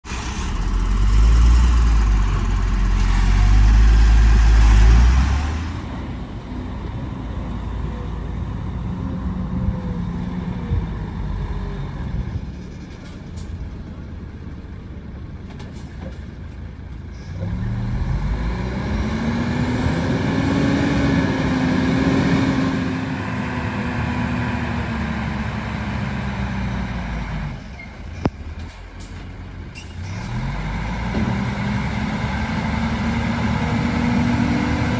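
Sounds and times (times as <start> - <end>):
heavy diesel engine revving: 0.0 - 12.5, 17.2 - 27.7, 30.0 - 34.9.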